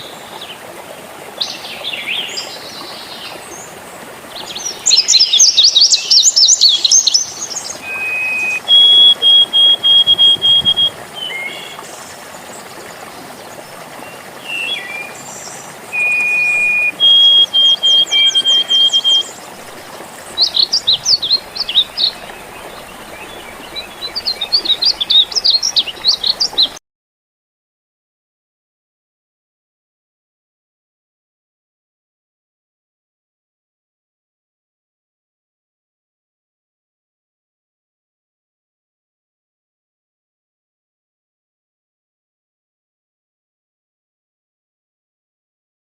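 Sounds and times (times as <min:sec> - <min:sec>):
water trickling: 0:00.0 - 0:26.8
birds singing: 0:01.4 - 0:26.8.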